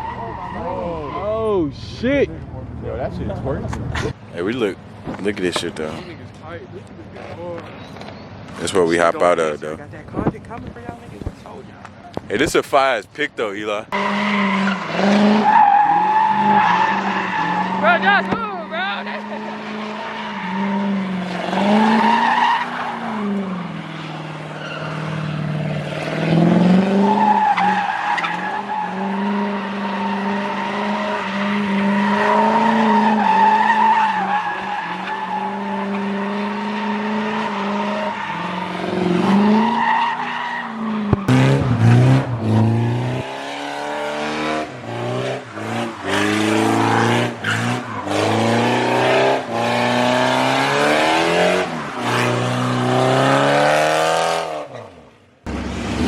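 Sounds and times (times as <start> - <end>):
tires squealing: 0.0 - 2.2, 12.2 - 56.0
car engine revving: 13.7 - 56.0.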